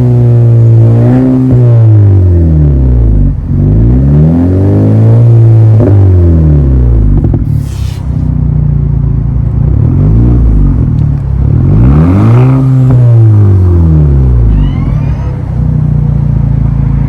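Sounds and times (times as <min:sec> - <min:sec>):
car engine revving: 0:00.0 - 0:17.0
engine hiss: 0:07.4 - 0:08.4.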